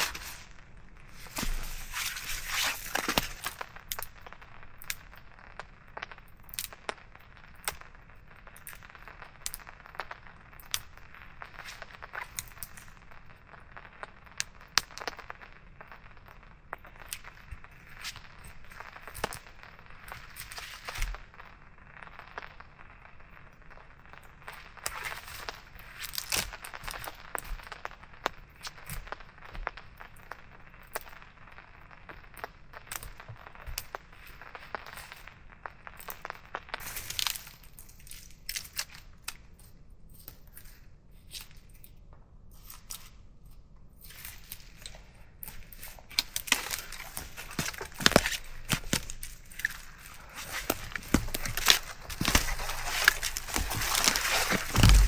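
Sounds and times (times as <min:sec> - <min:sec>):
rustling and crinkling: 0:00.0 - 0:04.4, 0:16.8 - 0:21.6, 0:44.0 - 0:55.0.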